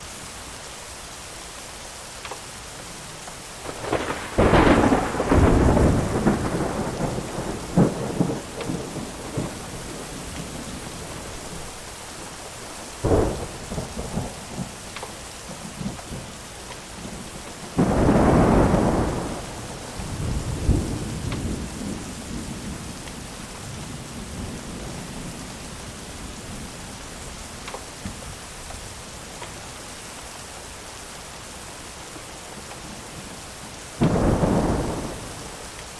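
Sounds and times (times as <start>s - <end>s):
steady rain: 0.0s - 35.9s
wood fire crackling: 1.9s - 31.1s
thunder rolling and cracking: 3.6s - 25.6s, 34.0s - 35.7s.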